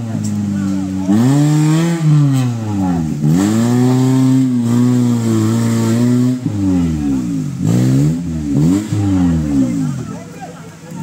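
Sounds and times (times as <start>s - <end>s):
car engine revving hard: 0.0s - 10.2s.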